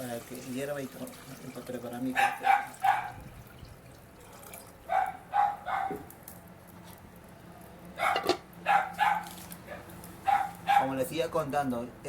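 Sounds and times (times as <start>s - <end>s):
dog barking: 2.1s - 3.2s, 4.9s - 6.1s, 8.0s - 11.0s.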